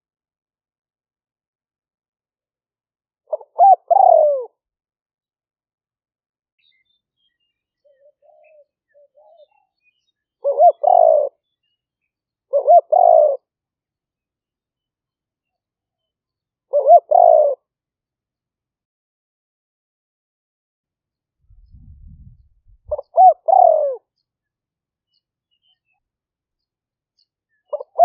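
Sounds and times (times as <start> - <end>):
dove cooing: 3.3 - 4.6, 7.9 - 9.6, 10.4 - 11.4, 12.5 - 13.5, 16.7 - 17.6, 22.9 - 24.0, 27.7 - 28.0.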